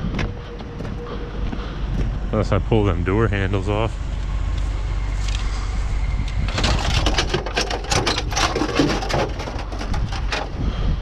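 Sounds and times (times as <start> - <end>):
steady low rumble: 0.0 - 11.0
sharp clicks and rattles: 6.2 - 10.6.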